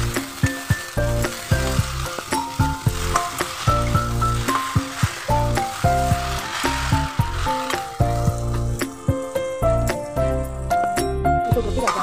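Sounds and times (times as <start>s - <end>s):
background music with a beat: 0.0s - 12.0s
rice sizzling in a wok: 0.0s - 12.0s
metal spatula stirring in wok: 0.2s - 9.3s.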